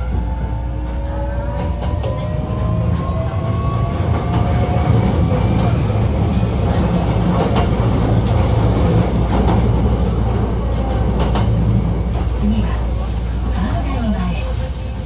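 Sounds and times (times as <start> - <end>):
train wheels rumbling on rail: 0.0 - 15.0
rail joint clicks: 4.0 - 12.4.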